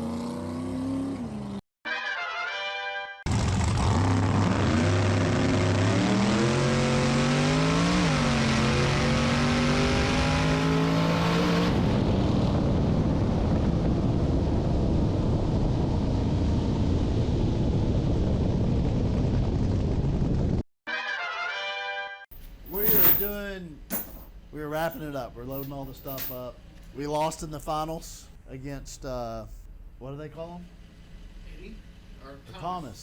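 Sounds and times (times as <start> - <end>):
truck engine at full throttle: 3.3 - 12.8.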